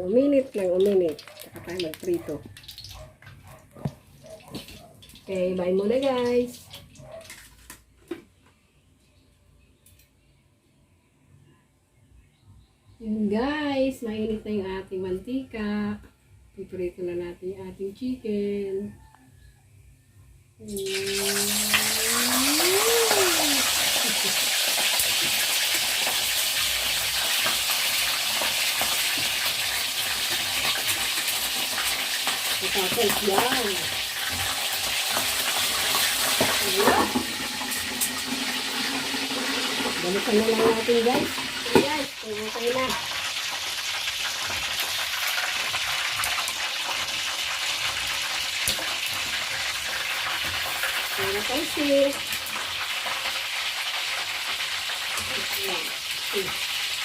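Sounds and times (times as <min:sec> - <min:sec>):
chicken frying in oil: 0:00.0 - 0:07.9, 0:20.6 - 0:57.0.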